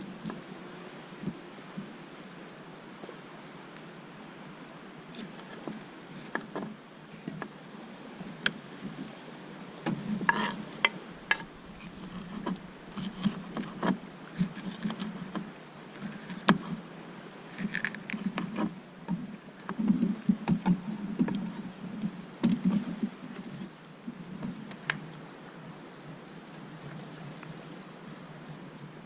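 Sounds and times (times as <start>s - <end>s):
paddle splashes: 1.2s - 26.1s
paddle knocking against hull: 9.8s - 16.8s, 17.6s - 23.4s.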